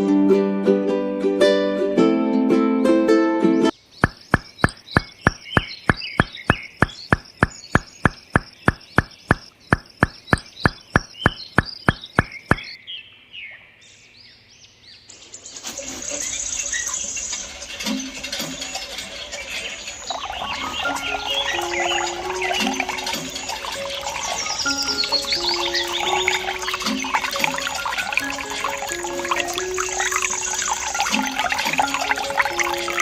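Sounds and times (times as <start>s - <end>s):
birds chirping: 3.7s - 33.0s
sharp clicks: 4.0s - 12.8s.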